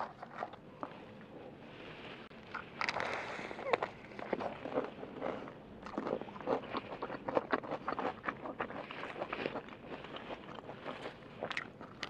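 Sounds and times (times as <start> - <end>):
chewing crunchy fried chicken: 2.5 - 12.0.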